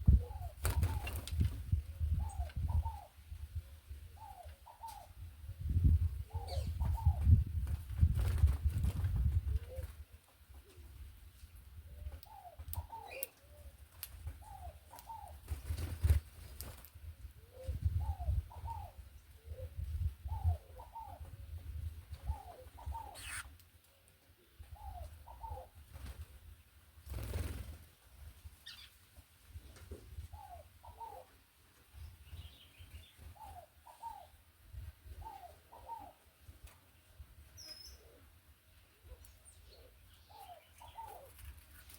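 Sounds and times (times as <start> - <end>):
dove cooing: 0.0 - 1.1, 2.0 - 3.2, 4.1 - 5.2, 6.2 - 7.4, 9.4 - 10.0, 11.9 - 13.7, 14.4 - 15.4, 17.4 - 21.5, 22.2 - 23.5, 24.7 - 25.8, 30.3 - 31.4, 33.3 - 34.4, 35.1 - 36.3, 39.0 - 41.4
small bird chirping: 22.3 - 23.6, 28.6 - 29.0, 37.6 - 38.0.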